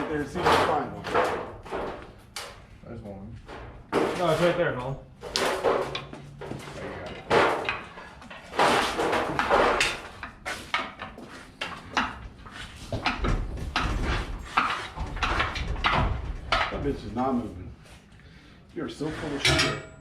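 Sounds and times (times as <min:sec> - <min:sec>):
metal pry bars clanking: 0:19.2 - 0:20.0.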